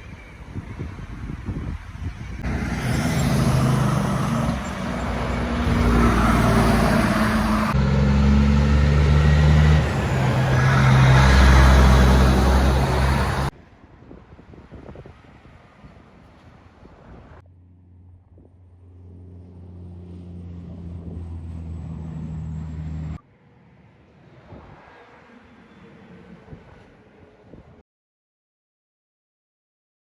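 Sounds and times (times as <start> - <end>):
engine humming: 2.4 - 13.5, 17.4 - 27.6.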